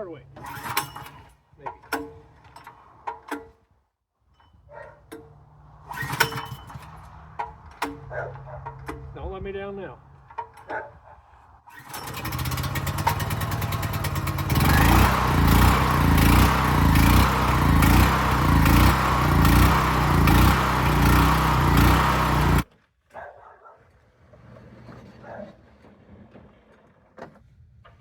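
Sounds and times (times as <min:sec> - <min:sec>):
generator engine running: 0:11.8 - 0:22.6.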